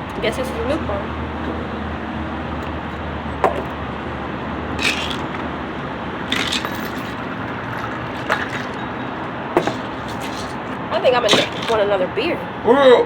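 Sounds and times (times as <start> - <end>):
short scraping rustles: 9.6 - 10.8.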